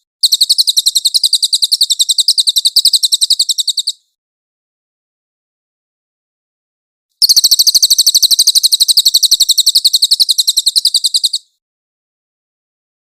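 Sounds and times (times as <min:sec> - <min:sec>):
high-pitched bird trill: 0:00.2 - 0:04.0, 0:07.2 - 0:11.6.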